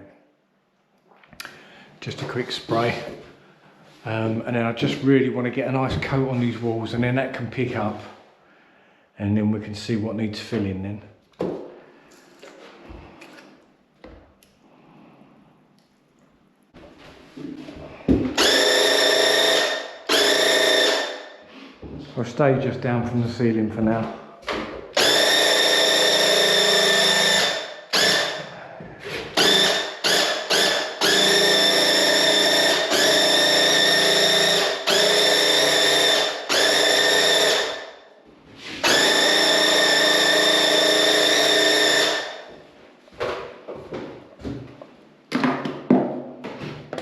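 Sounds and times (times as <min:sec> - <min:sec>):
paint sprayer buzzing: 0:18.4 - 0:21.3, 0:25.0 - 0:28.4, 0:29.4 - 0:37.9, 0:38.8 - 0:42.5.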